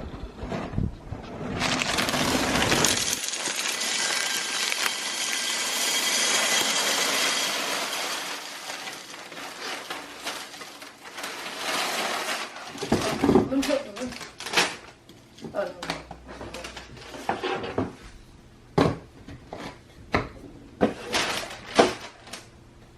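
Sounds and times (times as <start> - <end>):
snack pieces poured into container: 1.6 - 12.9.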